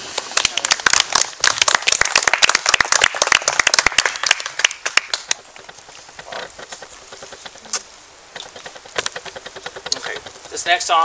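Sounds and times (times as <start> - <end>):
audience clapping: 0.2 - 5.4.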